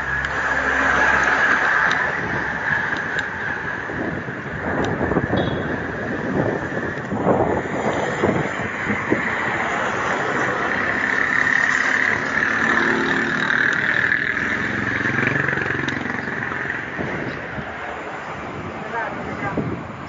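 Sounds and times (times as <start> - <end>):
road and wind noise: 0.0 - 20.0
vehicle engine passing: 7.2 - 17.6.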